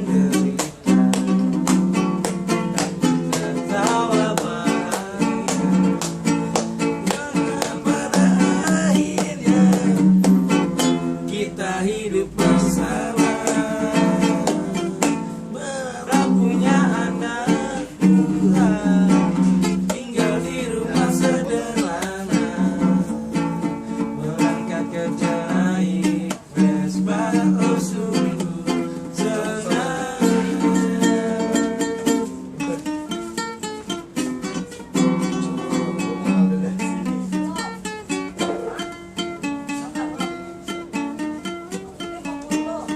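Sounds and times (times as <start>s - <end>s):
person singing: 0.0s - 32.9s
acoustic guitar strumming: 0.0s - 42.9s.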